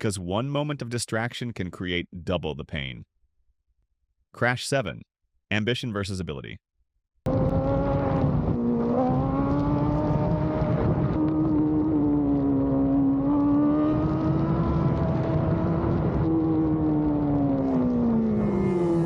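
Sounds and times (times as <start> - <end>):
motorcycle engine running: 7.3 - 19.0
wind and road noise: 7.3 - 19.0.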